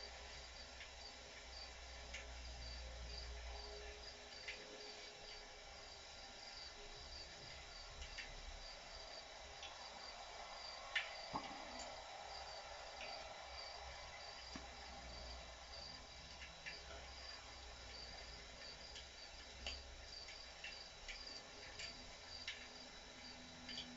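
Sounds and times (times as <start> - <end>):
faint cricket chirping: 0.0 - 23.9
campfire crackling: 6.8 - 23.0.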